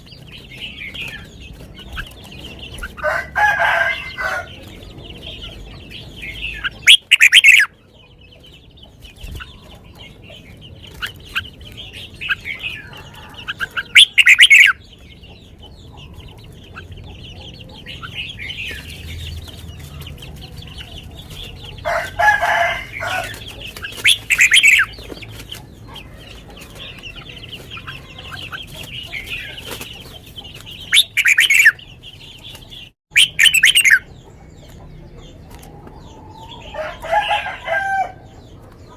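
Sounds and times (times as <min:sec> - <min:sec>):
background bird twittering: 0:00.0 - 0:38.9
bird singing short phrases: 0:06.6 - 0:07.7, 0:13.9 - 0:14.8, 0:33.1 - 0:34.1.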